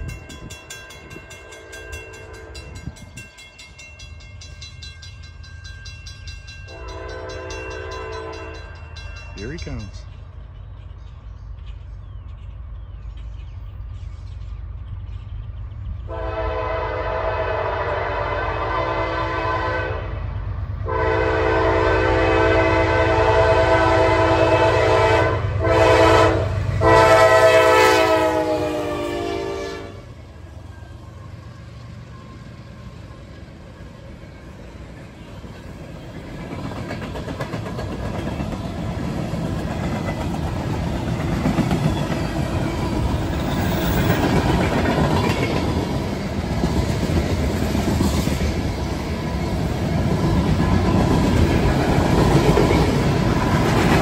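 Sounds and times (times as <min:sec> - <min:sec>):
locomotive horn blasts: 0:01.4 - 0:02.8, 0:06.7 - 0:08.7, 0:16.1 - 0:20.2, 0:20.8 - 0:30.2.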